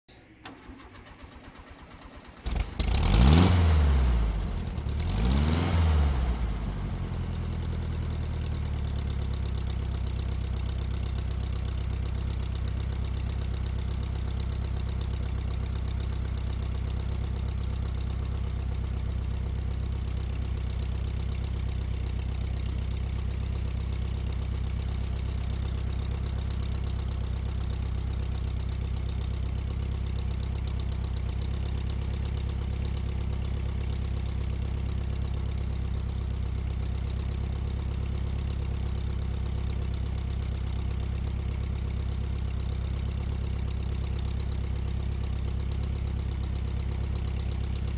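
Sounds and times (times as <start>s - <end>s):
car engine starting and idling: 0.1s - 47.9s
car engine revving: 2.5s - 4.4s, 5.0s - 6.2s.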